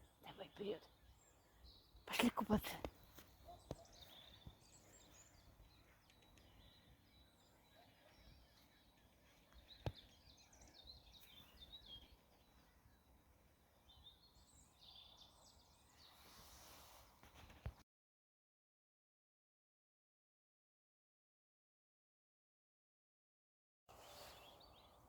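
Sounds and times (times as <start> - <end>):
faint birdsong: 0.0 - 17.8, 23.9 - 25.0.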